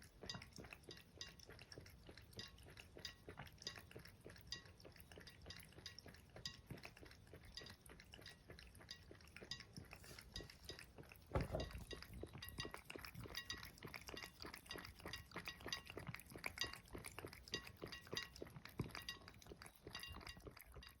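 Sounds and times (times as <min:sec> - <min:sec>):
cat lapping water: 0:00.0 - 0:21.0
soft thump: 0:11.3 - 0:11.8.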